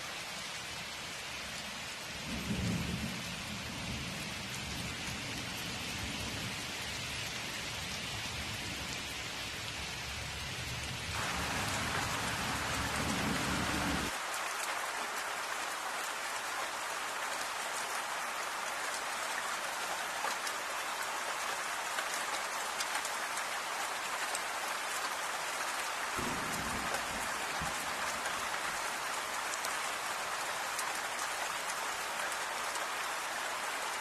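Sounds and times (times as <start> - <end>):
steady rain falling: 0.0 - 34.0
raindrops ticking: 26.2 - 31.8.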